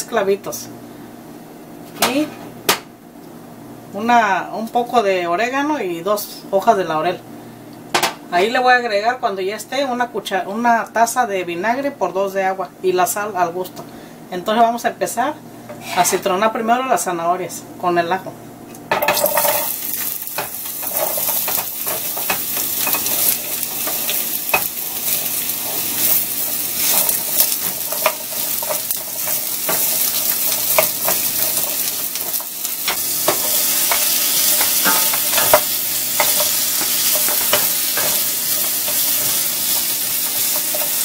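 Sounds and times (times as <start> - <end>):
vegetables sizzling in oil: 18.9 - 41.0
wooden spoon scraping a pan: 19.2 - 41.0.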